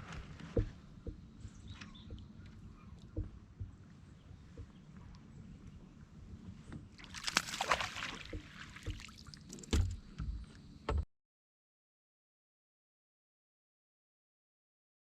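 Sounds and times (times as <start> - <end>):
knocks and thuds on kayak hull: 0.4 - 2.4, 3.0 - 4.8, 8.1 - 11.1
water splashing and sloshing: 6.4 - 10.3.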